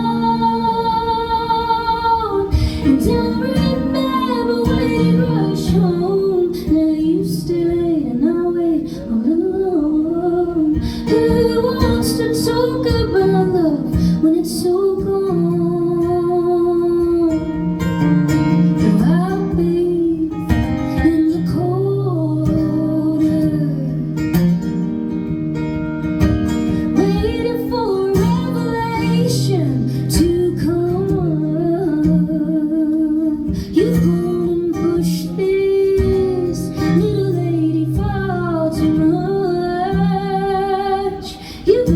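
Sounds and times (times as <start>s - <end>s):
acoustic guitar strumming: 0.0s - 41.9s
woman singing: 0.0s - 41.9s.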